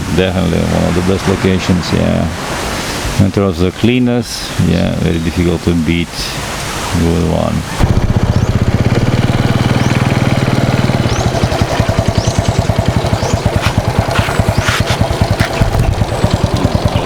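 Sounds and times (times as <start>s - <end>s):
low steady hum: 0.0s - 17.0s
small engine puttering: 7.7s - 17.0s.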